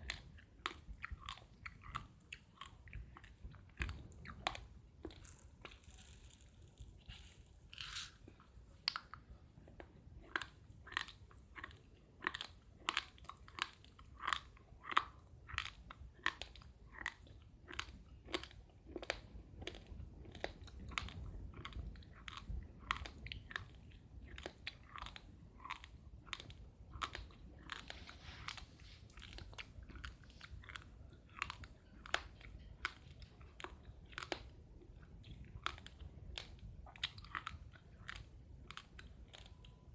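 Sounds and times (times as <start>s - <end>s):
rice grains crunching: 4.5s - 8.3s.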